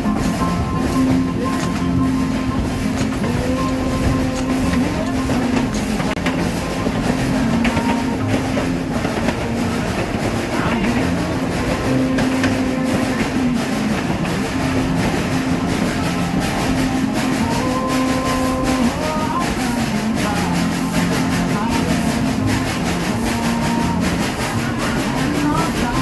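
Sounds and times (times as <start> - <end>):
rail joint clicks: 0.0 - 26.0
train wheels rumbling on rails: 0.0 - 26.0.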